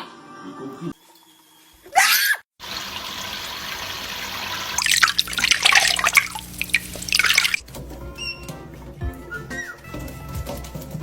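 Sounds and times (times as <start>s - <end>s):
water running from a tap: 2.6s - 7.6s
water splashing and dripping: 2.6s - 7.6s.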